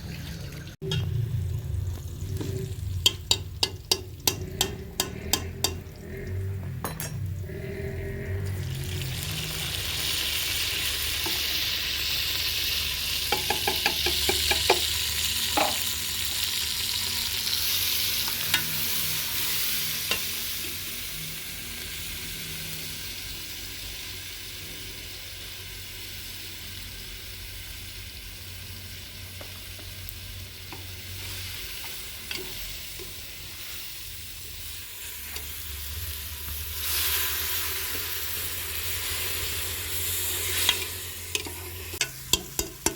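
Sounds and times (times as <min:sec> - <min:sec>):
food sizzling in hot oil: 0:00.0 - 0:06.4, 0:08.4 - 0:42.9
spoon stirring in a pot: 0:02.4 - 0:06.3, 0:40.6 - 0:42.9
spoon knocking on pot: 0:03.0 - 0:05.9, 0:13.3 - 0:14.9, 0:41.4 - 0:42.9.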